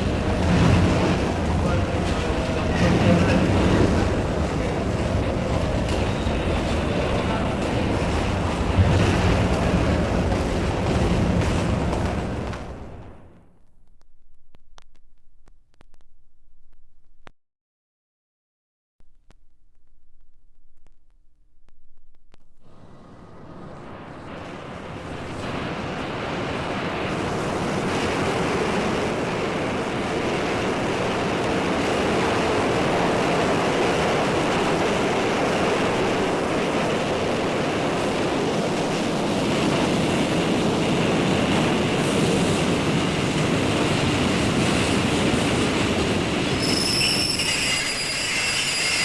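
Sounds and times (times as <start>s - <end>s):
loud steady rumbling: 0.0s - 14.0s, 19.0s - 46.5s
high-pitched squealing tones: 46.5s - 49.0s.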